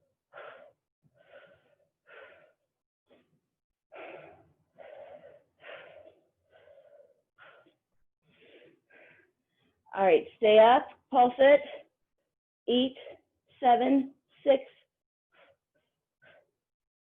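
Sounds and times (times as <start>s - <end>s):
woman breathing heavily: 0.2s - 3.2s, 3.9s - 9.8s, 15.3s - 16.7s.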